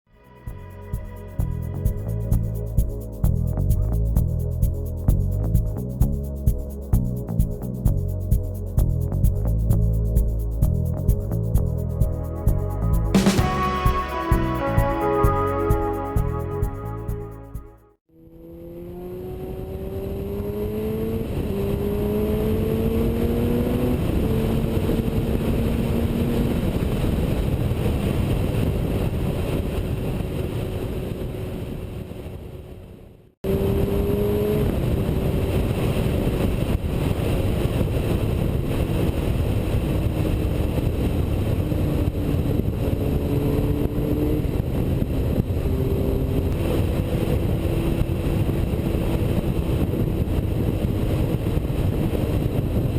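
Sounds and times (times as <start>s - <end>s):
motorcycle engine accelerating: 10.7s - 27.5s, 33.4s - 37.7s, 40.0s - 52.9s.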